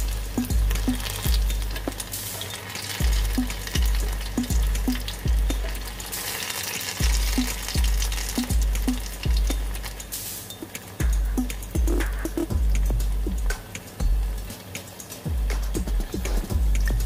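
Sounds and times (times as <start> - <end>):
music with bass beat: 0.0 - 6.4, 7.0 - 17.0
frying in hot oil: 0.0 - 11.2.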